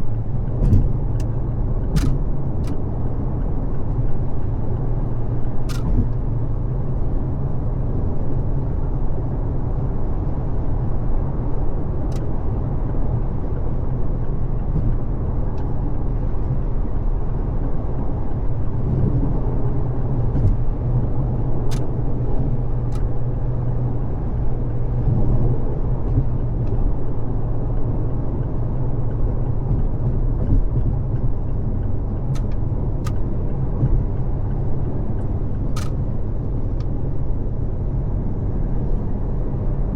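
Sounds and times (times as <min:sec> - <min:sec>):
car road and engine rumble: 0:00.0 - 0:39.9
short sharp clicks: 0:35.8 - 0:36.0.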